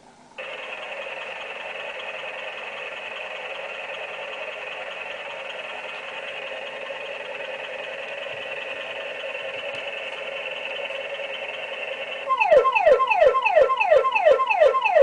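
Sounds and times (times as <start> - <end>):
toy fire truck humming: 0.4 - 15.0.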